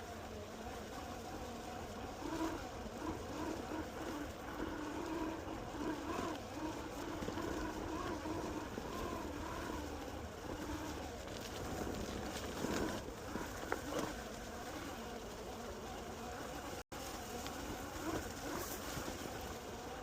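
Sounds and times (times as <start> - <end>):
wheels rumbling on pavement: 0.0 - 20.0
electric motors whining: 2.0 - 16.6.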